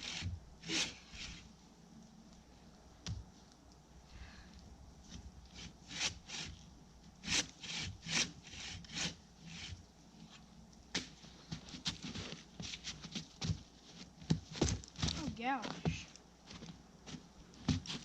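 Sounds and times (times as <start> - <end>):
hand saw cutting wood: 0.0 - 1.4, 5.6 - 6.6, 7.2 - 9.8.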